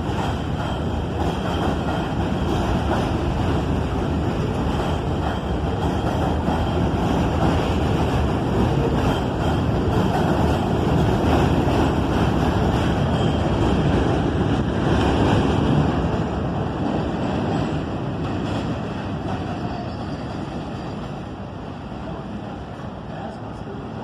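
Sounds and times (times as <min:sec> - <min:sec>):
subway train rumble: 0:00.0 - 0:24.0.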